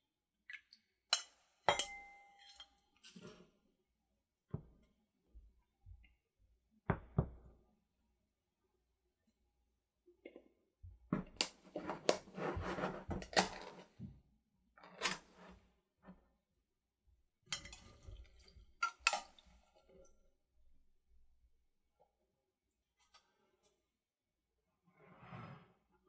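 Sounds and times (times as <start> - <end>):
dishes clinking and knocking: 1.2 - 2.7.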